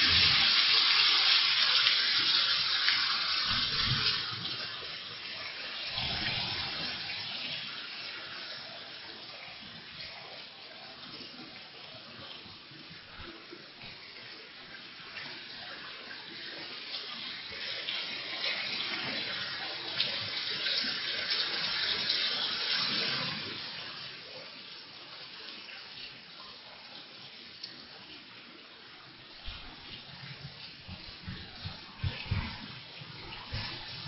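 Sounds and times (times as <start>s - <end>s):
heavy rain pouring: 0.0s - 10.2s, 29.2s - 34.0s.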